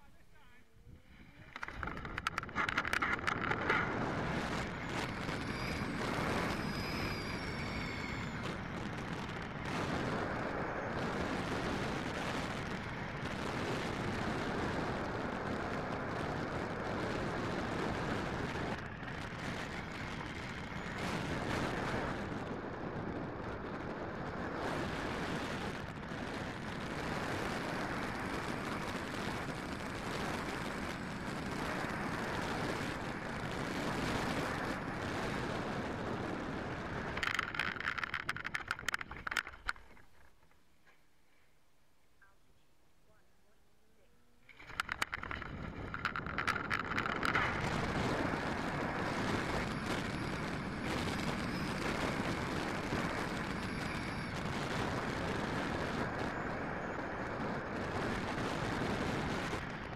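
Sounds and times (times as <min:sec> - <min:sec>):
pitched whine gliding: 0:00.0 - 0:40.5, 0:43.1 - 0:59.9
model airplane engine running: 0:01.2 - 0:39.6, 0:44.3 - 0:59.9
rough rushing noise: 0:44.5 - 0:54.5.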